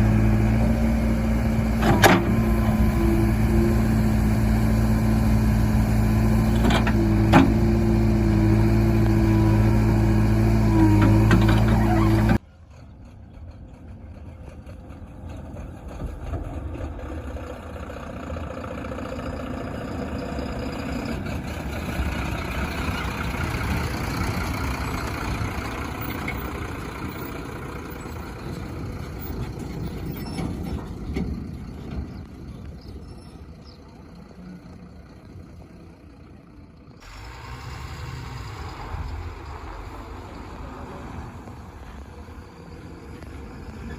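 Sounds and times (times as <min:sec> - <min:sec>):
heavy diesel engine running: 0:00.0 - 0:43.9.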